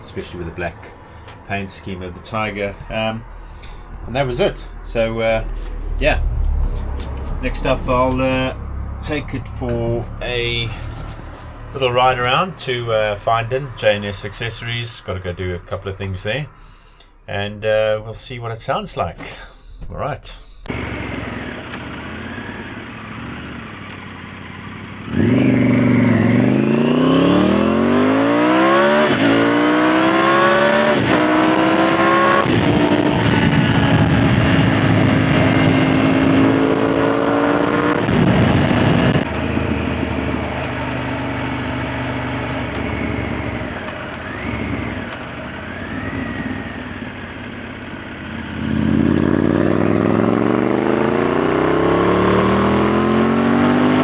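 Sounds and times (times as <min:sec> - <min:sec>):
motorcycle engine accelerating: 0:04.1 - 0:12.4, 0:20.7 - 0:54.0.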